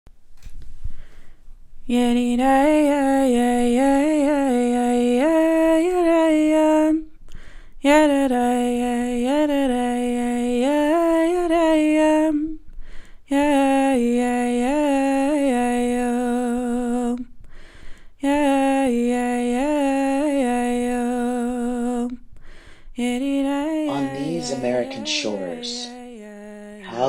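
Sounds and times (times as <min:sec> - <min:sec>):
woman breathing: 0:00.8 - 0:01.6, 0:07.3 - 0:07.8, 0:12.7 - 0:13.3, 0:17.4 - 0:18.2, 0:22.3 - 0:23.0
woman singing wordless melody: 0:01.8 - 0:07.2, 0:07.8 - 0:12.6, 0:13.2 - 0:17.4, 0:18.2 - 0:22.3, 0:22.9 - 0:27.0.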